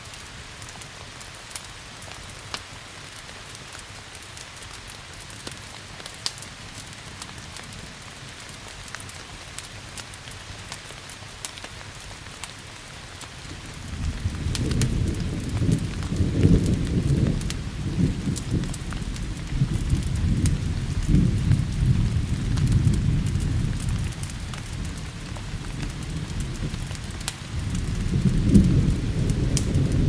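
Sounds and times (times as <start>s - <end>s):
steady rain: 0.0s - 30.0s
wood fire crackling: 0.0s - 30.0s
thunder rumbling: 13.5s - 30.0s.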